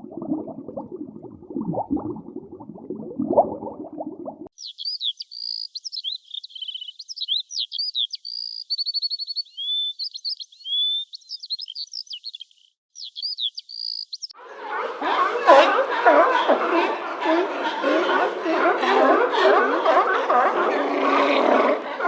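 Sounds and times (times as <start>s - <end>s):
bird singing: 4.5s - 14.4s.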